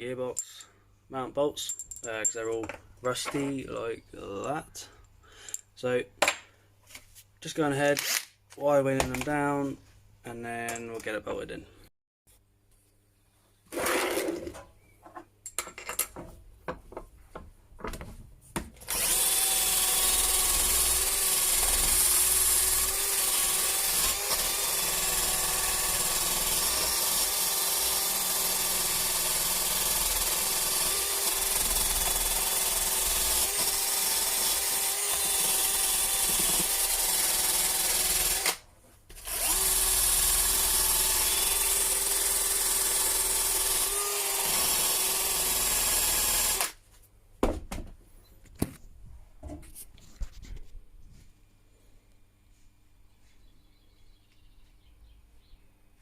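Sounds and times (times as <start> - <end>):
handling clicks and knocks: 10.6 - 11.2.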